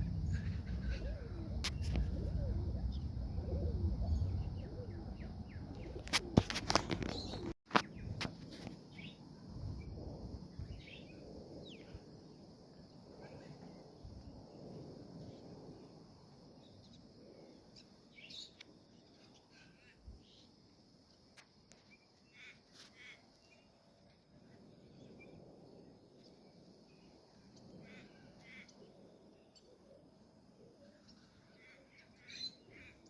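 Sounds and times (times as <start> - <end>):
bird chirps: 31.1 - 33.0.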